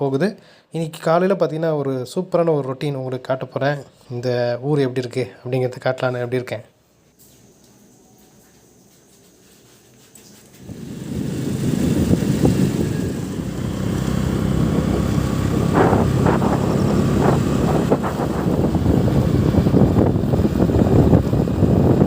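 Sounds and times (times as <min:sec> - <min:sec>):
wind buffeting microphone: 0:10.6 - 0:22.0
moving vehicle: 0:10.7 - 0:22.0.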